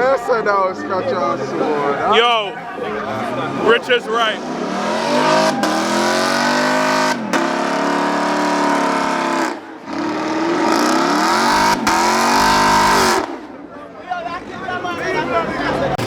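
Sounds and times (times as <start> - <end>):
car engine revving hard: 3.4 - 13.6.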